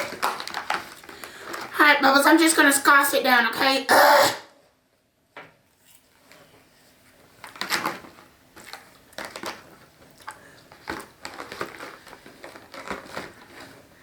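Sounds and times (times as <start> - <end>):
person chewing cake: 8.6 - 13.6.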